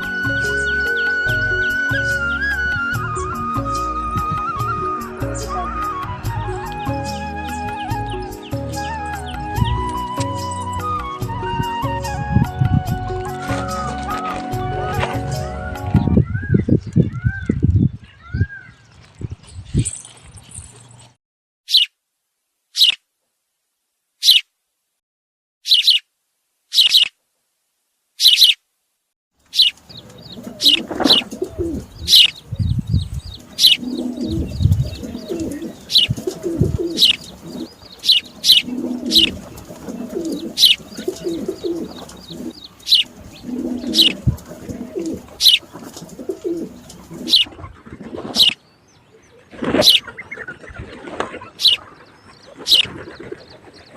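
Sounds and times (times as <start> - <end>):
pigeons cooing: 0.0 - 16.6, 29.6 - 48.6, 49.5 - 53.9
low thumps: 2.4 - 16.2
small birds chirping: 5.2 - 12.3, 16.0 - 22.0, 22.7 - 23.0, 24.2 - 24.5, 25.6 - 26.1, 26.7 - 27.2, 28.2 - 28.6, 29.4 - 53.9.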